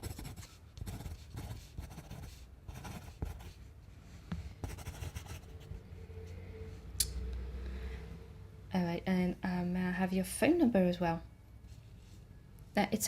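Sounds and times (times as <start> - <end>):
pencil scratching on paper: 0.0 - 3.7, 4.6 - 5.8.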